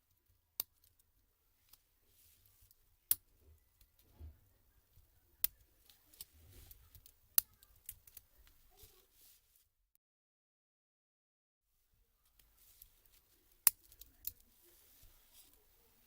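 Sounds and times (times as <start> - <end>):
faint rustling: 0.9 - 9.7, 12.2 - 16.0.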